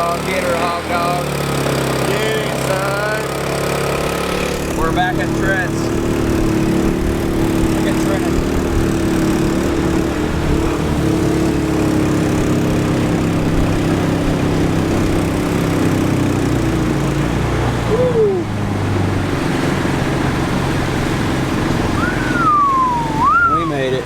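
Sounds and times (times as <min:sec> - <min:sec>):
vehicle engine running: 0:00.0 - 0:24.0
brief rising squeak: 0:22.0 - 0:23.8.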